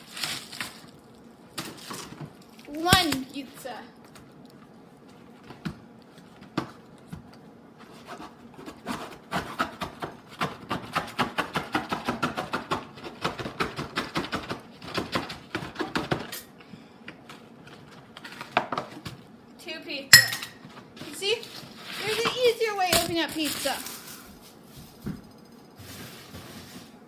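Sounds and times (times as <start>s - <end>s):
cardboard and wrapping crackling: 0.0s - 3.3s, 21.0s - 25.0s.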